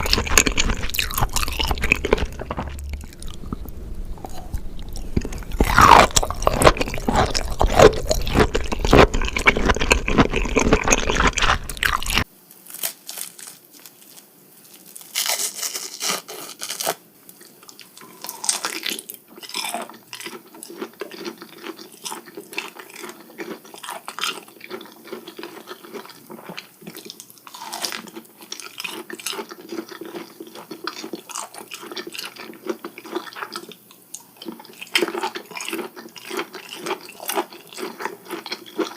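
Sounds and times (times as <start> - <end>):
close chewing and biting: 0.0 - 12.3, 15.2 - 38.9.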